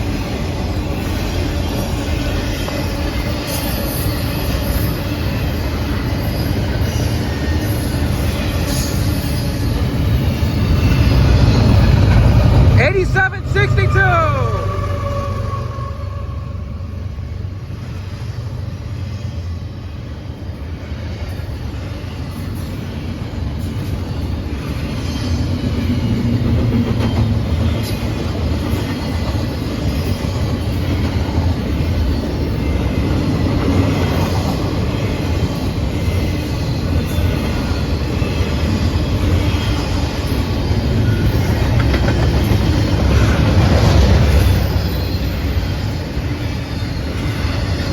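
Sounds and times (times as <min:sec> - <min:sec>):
train wheels rumbling on rails: 0:00.0 - 0:47.9
faint high wheel squeal: 0:35.9 - 0:47.9.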